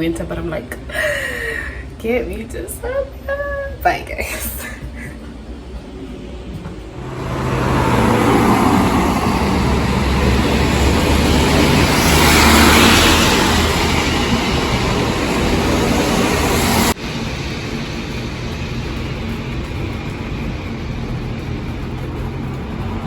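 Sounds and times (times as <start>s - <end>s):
road vehicle low rumble: 6.9s - 23.0s.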